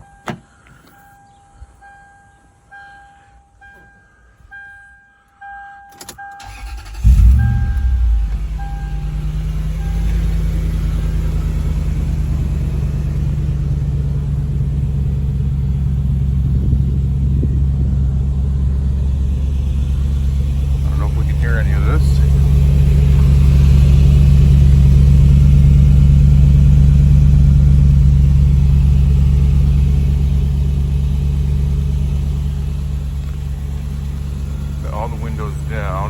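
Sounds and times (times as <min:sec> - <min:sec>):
car warning chime beeping: 0:00.0 - 0:10.6
car engine starting and idling: 0:05.9 - 0:36.0.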